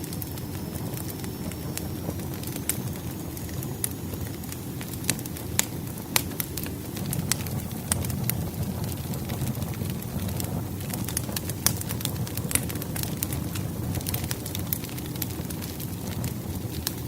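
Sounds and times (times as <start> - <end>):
firewood crackling and popping: 0.0 - 17.0
low rumble of fire: 0.0 - 17.0.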